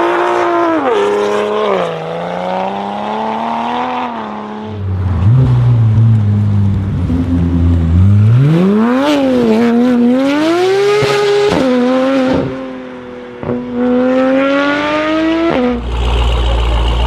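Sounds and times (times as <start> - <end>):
car engine accelerating hard: 13.4 - 17.0.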